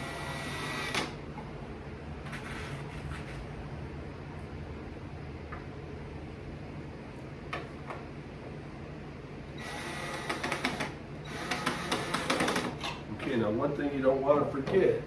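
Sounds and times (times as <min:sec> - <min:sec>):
electric drill whirring: 0:00.0 - 0:01.2, 0:09.6 - 0:12.8.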